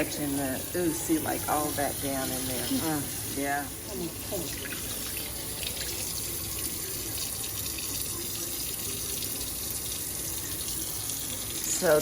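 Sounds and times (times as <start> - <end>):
faucet running into sink: 0.0 - 12.0.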